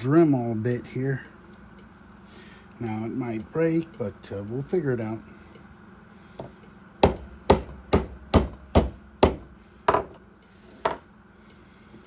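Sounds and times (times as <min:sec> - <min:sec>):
hammer tapping metal: 0:07.0 - 0:10.1.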